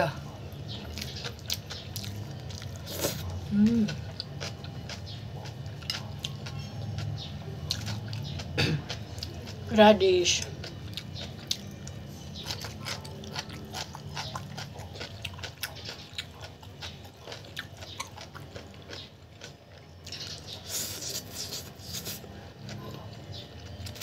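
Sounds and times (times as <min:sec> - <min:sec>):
wet chewing and mouth clicks: 0:00.5 - 0:24.0
slurping noodles: 0:02.8 - 0:03.3.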